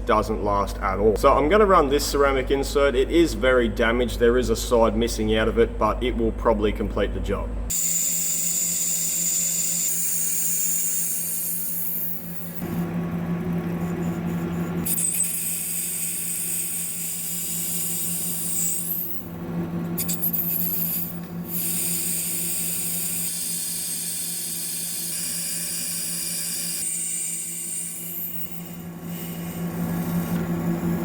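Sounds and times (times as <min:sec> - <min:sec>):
lathe cutting steel: 0:07.7 - 0:19.3, 0:20.0 - 0:31.0.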